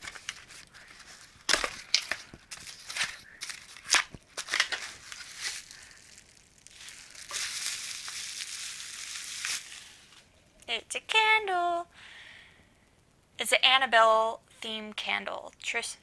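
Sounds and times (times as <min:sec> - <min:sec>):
paper packaging crinkling: 0:00.0 - 0:10.3.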